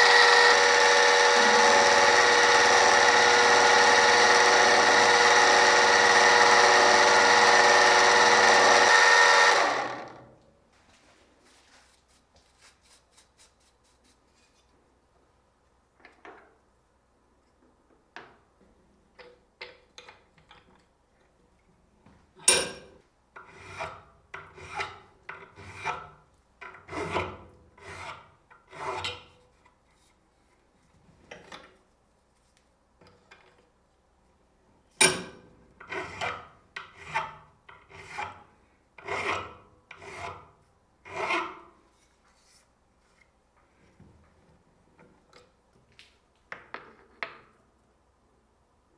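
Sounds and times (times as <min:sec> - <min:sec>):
hand file on metal: 0:00.0 - 0:09.9, 0:23.4 - 0:26.1, 0:26.9 - 0:29.0, 0:35.9 - 0:42.1.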